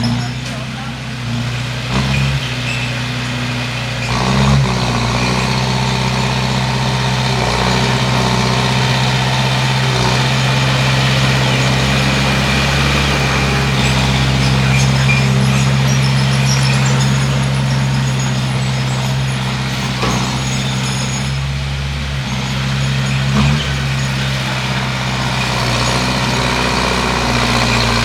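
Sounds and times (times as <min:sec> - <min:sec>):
bulldozer diesel engine running: 0:00.0 - 0:28.0.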